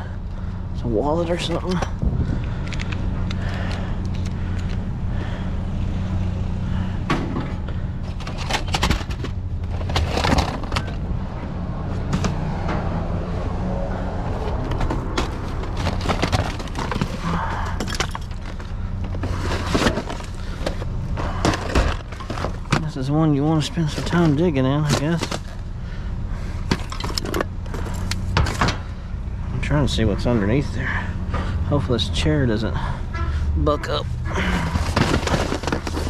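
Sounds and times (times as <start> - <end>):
low hum: 0.0 - 22.8
junk rummaged in metal dumpster: 6.7 - 11.2, 14.3 - 25.6, 26.6 - 29.0, 34.3 - 36.0.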